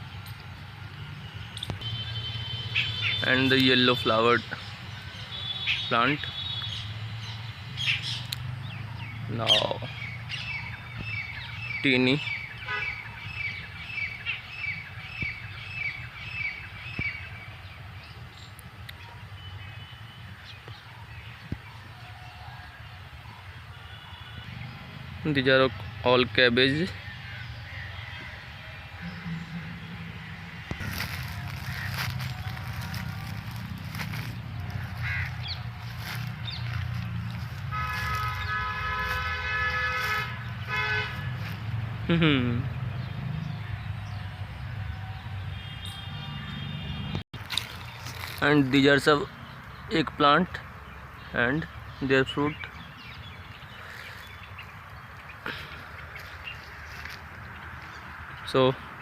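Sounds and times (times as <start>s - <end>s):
bird chirping: 1.3s - 21.9s
horn blast: 29.0s - 31.6s, 37.6s - 41.4s
low rumble: 29.0s - 37.6s.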